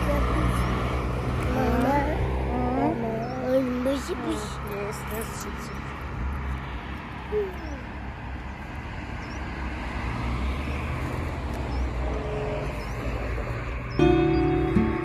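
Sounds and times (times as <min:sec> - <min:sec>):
road vehicle rumble: 0:00.0 - 0:15.0
music: 0:14.0 - 0:15.0.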